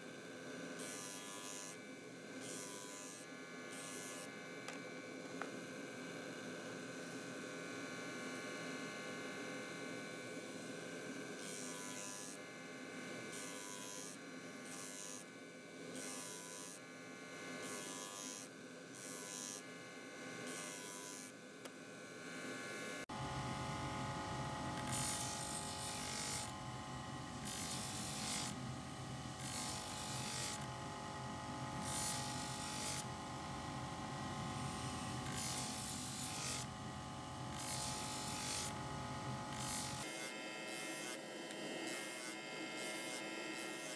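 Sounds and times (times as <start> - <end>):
electric motor spinning sanding drum: 22.4 - 43.9.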